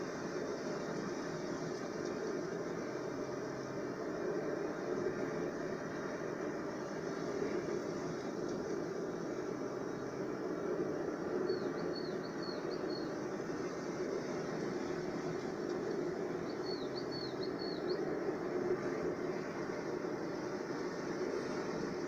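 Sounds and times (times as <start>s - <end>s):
low rushing noise: 0.0s - 22.0s
small bird chirping: 11.5s - 13.1s, 16.5s - 18.0s.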